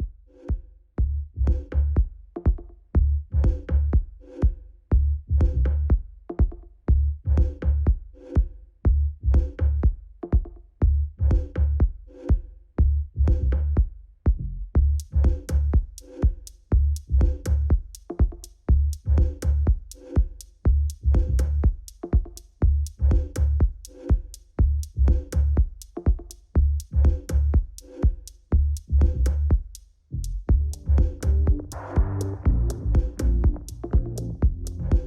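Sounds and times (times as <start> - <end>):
electronic dance music: 30.7 - 35.0.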